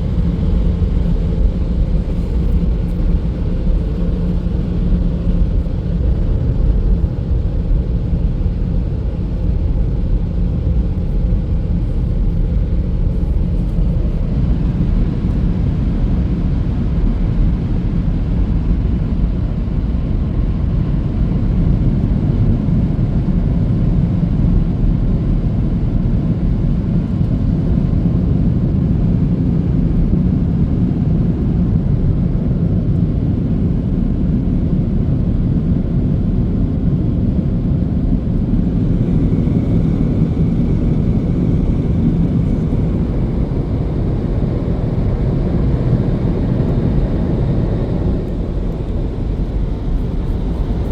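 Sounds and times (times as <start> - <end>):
car wash machinery rumbling: 0.0 - 15.6, 37.8 - 50.9.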